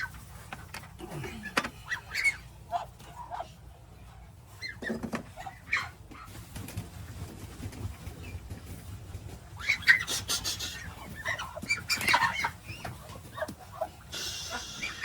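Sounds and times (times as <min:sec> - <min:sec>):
poultry calling: 0:01.4 - 0:06.4, 0:09.2 - 0:15.0.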